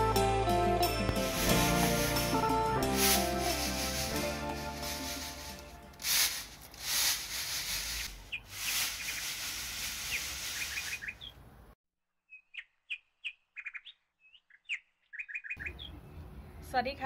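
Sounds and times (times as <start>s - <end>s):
rushing noise: 1.2s - 10.9s
songbirds chirping: 7.9s - 17.0s.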